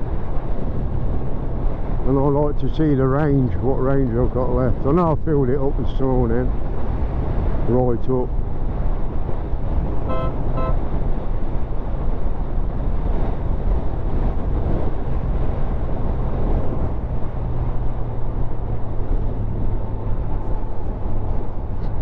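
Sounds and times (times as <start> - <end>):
wind buffeting microphone: 0.0 - 22.0
motorcycle engine drone: 9.8 - 11.4
brief pitched tones: 10.1 - 10.8.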